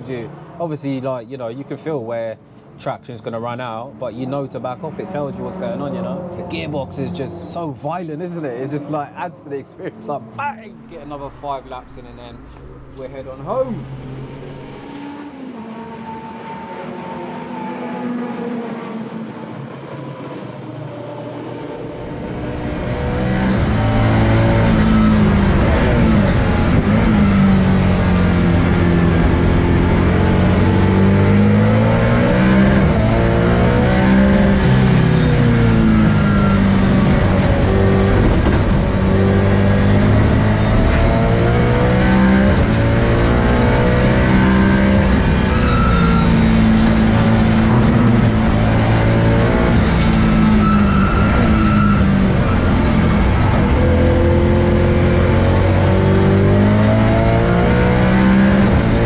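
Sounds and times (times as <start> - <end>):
race car engine revving: 9.9 - 59.0.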